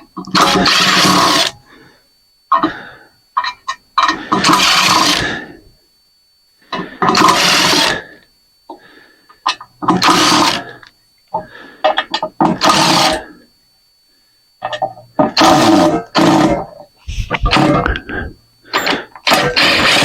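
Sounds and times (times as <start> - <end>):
cordless drill bursts: 0.3 - 1.6, 4.4 - 5.3, 7.1 - 8.0, 9.9 - 10.7, 12.6 - 13.2, 19.2 - 20.0.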